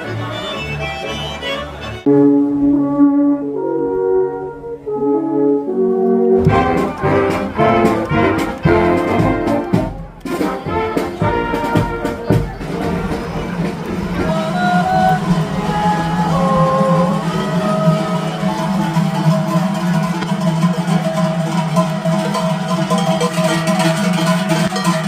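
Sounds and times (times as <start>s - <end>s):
brass band playing: 0.0s - 25.0s
drum beats: 6.4s - 25.0s.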